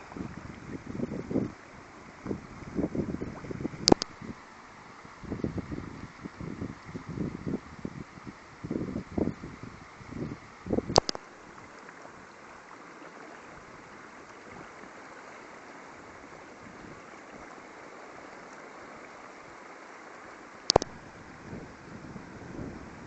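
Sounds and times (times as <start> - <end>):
wind buffeting microphone: 0.0 - 4.4, 5.0 - 11.0, 20.8 - 23.0
rainwater runoff rushing: 0.0 - 23.0
sharp clicks: 3.8 - 4.1, 10.9 - 11.2, 20.7 - 21.0.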